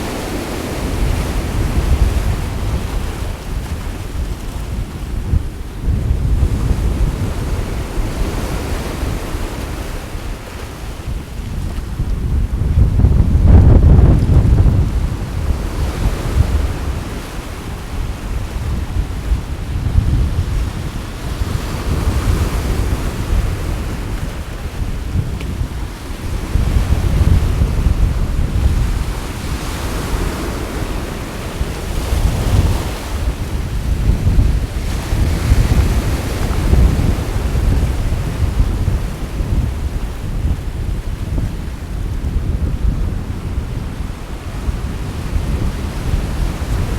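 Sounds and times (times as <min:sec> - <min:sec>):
sea waves washing in: 0:00.0 - 0:46.9
wind buffeting microphone: 0:00.0 - 0:46.9.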